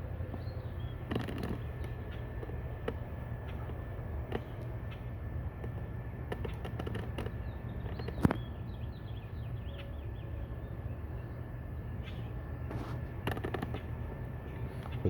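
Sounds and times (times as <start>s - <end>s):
steady low rumble: 0.0s - 15.0s
bird chirping: 0.2s - 2.6s, 6.4s - 15.0s.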